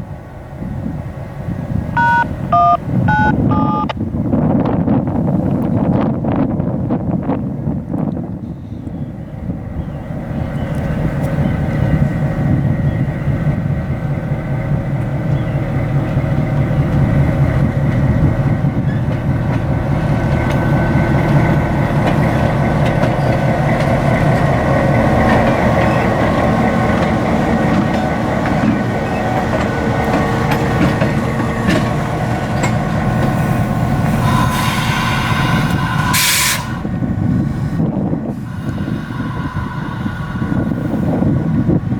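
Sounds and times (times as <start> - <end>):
diesel locomotive engine running: 0.0 - 41.9
steel wheels clacking over rails: 14.7 - 36.9
hiss: 33.3 - 36.9.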